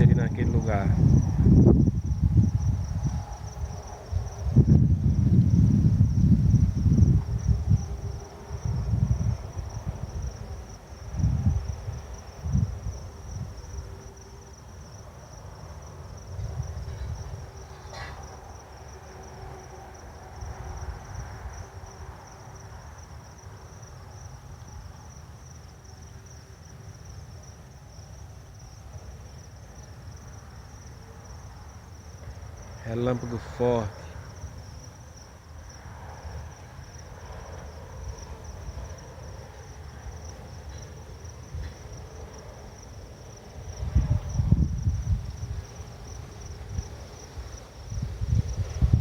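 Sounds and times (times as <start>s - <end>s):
crickets chirring: 0.0s - 49.0s.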